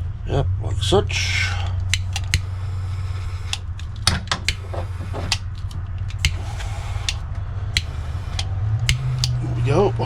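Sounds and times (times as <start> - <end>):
heat gun humming: 1.8 - 9.4.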